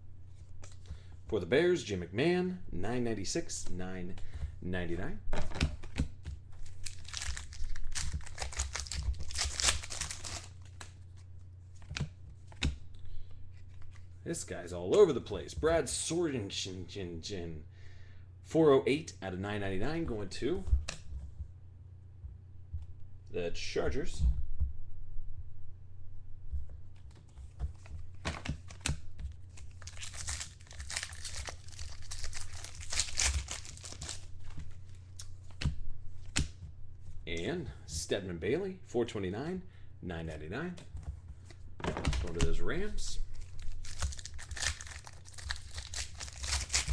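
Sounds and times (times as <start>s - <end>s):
plastic wrapper crinkling and tearing: 6.6s - 11.0s, 28.6s - 35.4s, 43.3s - 46.9s.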